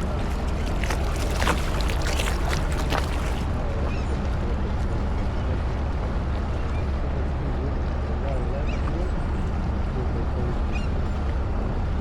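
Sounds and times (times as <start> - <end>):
sharp water splashes: 0.0 - 3.6
boat engine rumble: 0.0 - 12.0.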